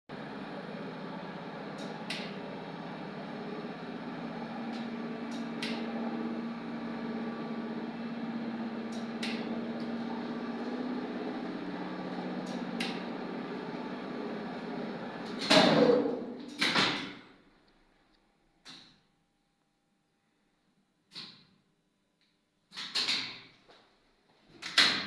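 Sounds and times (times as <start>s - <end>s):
elevator hoist motor humming: 0.1s - 17.2s.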